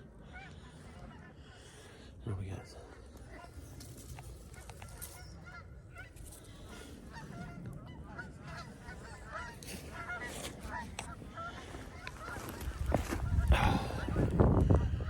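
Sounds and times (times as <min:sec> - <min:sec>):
geese honking: 0:04.5 - 0:15.0.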